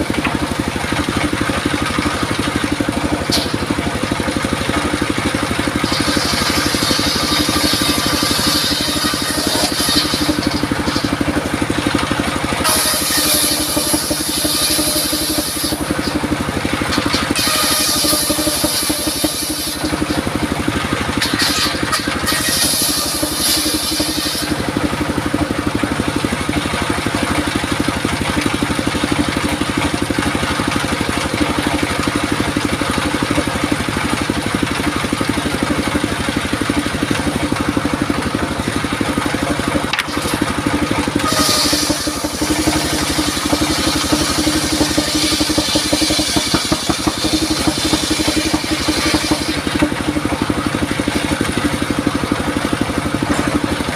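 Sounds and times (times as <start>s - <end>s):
circular saw machine running: 0.0s - 53.9s
saw blade hissing through wood: 5.8s - 11.4s, 12.6s - 16.4s, 17.0s - 20.4s, 21.1s - 24.6s, 41.2s - 50.1s.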